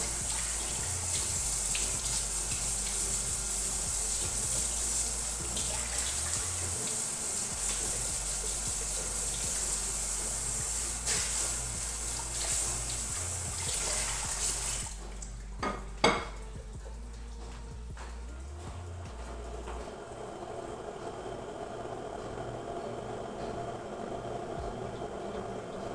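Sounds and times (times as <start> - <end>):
tap water running into sink: 0.0 - 16.4, 19.0 - 25.9
dishes clinking: 15.0 - 16.5.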